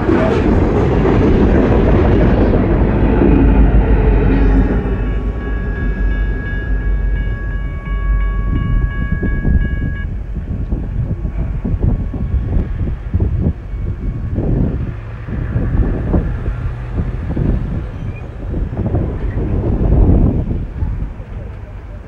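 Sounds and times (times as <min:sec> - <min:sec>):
train cars rolling on rails: 0:00.0 - 0:22.0
wind buffeting microphone: 0:00.0 - 0:22.0
crossing signal bell ringing: 0:03.8 - 0:10.3.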